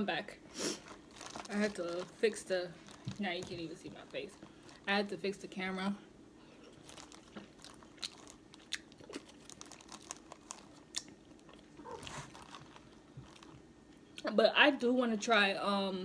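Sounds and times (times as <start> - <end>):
person eating shellfish crunching: 6.6 - 13.7.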